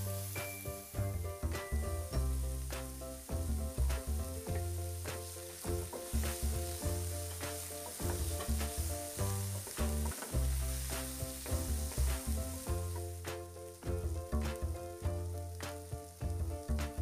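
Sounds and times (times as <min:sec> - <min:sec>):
background music: 0:00.0 - 0:17.0
vegetables sizzling in oil: 0:00.0 - 0:17.0
spatula stirring in pan: 0:04.5 - 0:13.0.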